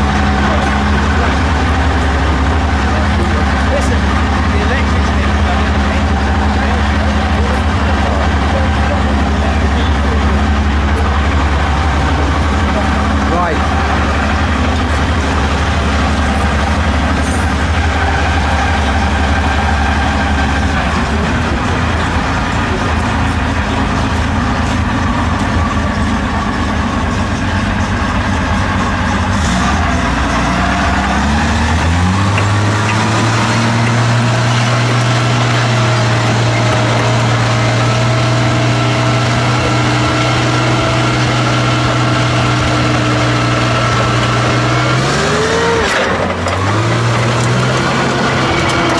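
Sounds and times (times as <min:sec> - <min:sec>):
tank engine idling: 0:00.0 - 0:48.9.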